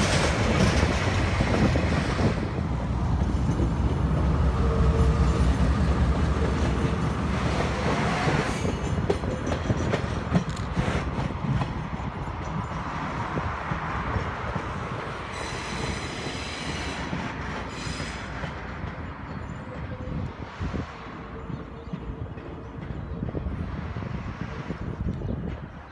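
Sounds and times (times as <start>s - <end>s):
wheels clicking over rail joints: 0.0s - 12.8s
train rumble: 0.0s - 25.9s
high wheel squeal: 15.2s - 18.6s.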